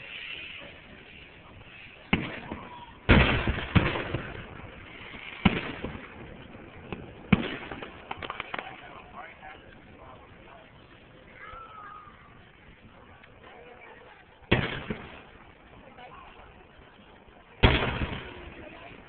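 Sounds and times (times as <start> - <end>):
fireworks bangs: 0.0 - 10.6, 14.4 - 16.9, 17.5 - 19.0
fireworks crackling: 0.0 - 19.0.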